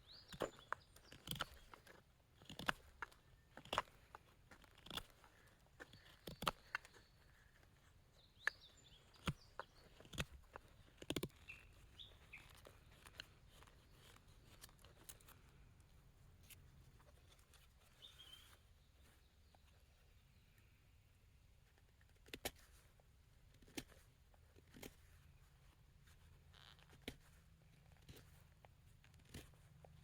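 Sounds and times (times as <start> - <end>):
faint bird chirps: 17.2 - 21.2.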